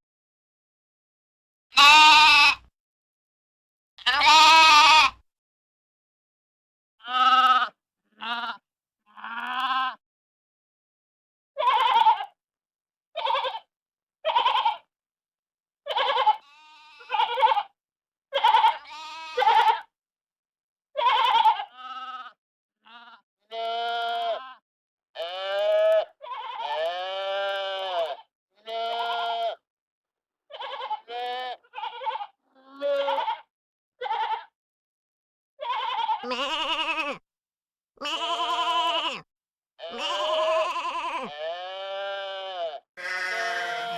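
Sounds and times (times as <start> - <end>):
sheep and lambs bleating: 1.7 - 2.7, 4.0 - 5.2, 7.0 - 10.0, 11.6 - 12.4, 13.2 - 14.9, 15.9 - 19.9, 21.0 - 24.6, 25.2 - 29.6, 30.5 - 34.6, 35.6 - 37.2, 38.0 - 43.9.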